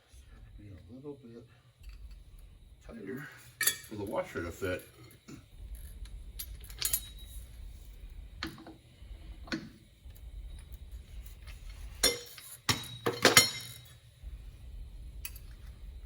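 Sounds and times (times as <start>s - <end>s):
metal tools clinking: 3.5s - 5.2s, 6.4s - 7.4s, 12.0s - 14.0s.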